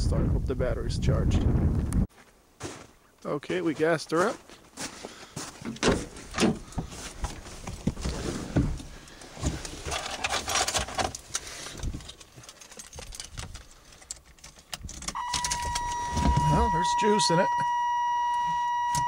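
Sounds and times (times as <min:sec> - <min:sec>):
shuffling footsteps: 0:02.1 - 0:10.0
dashboard warning beep: 0:15.2 - 0:19.0.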